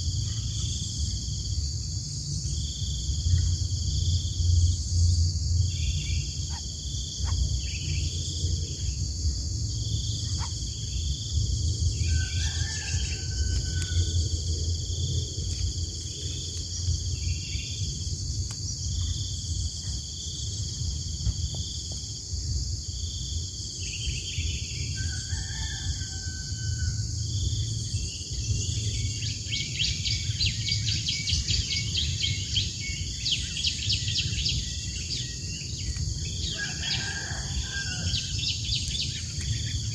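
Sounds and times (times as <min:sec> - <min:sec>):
low rumble: 0:00.0 - 0:25.0
insects droning: 0:00.0 - 0:39.9
repeating insect chirp: 0:00.0 - 0:39.9
bird calls: 0:10.1 - 0:11.1.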